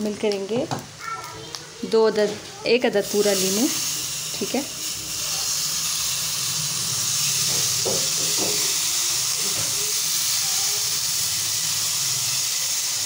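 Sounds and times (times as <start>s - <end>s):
chicken frying in oil: 3.0s - 13.0s.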